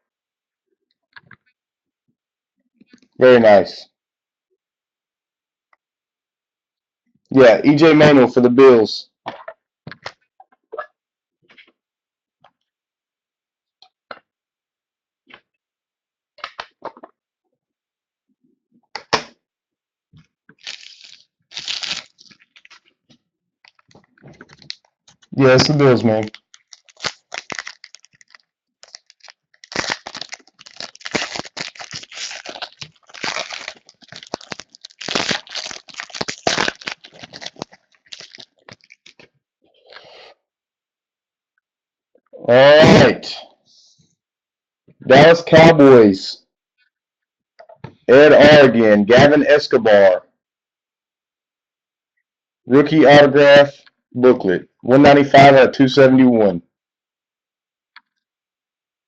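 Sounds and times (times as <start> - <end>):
trading cards and packaging clicking: 26.2 - 39.3.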